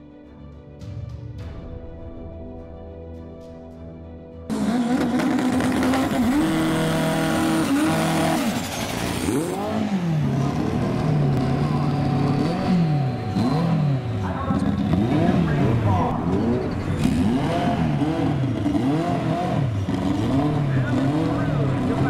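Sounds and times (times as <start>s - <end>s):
car engine revving high: 4.5s - 22.0s.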